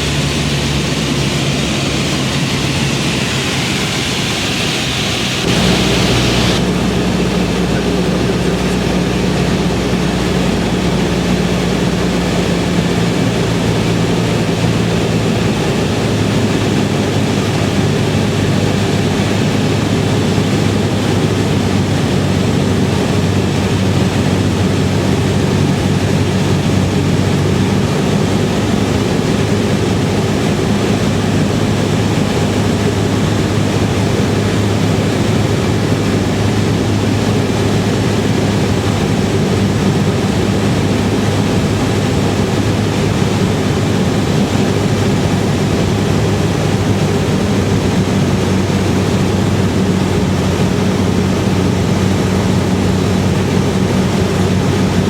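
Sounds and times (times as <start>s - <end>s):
propeller plane engine drone: 0.0s - 55.0s
rush of air: 0.1s - 11.3s.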